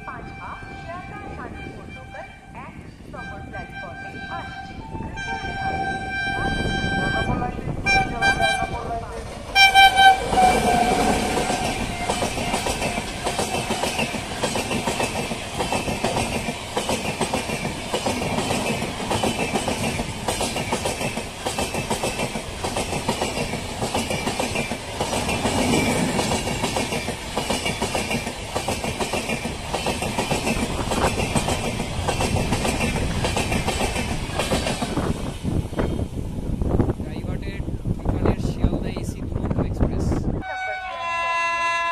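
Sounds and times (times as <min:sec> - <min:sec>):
train wheels clattering over rail joints: 0:10.3 - 0:35.2.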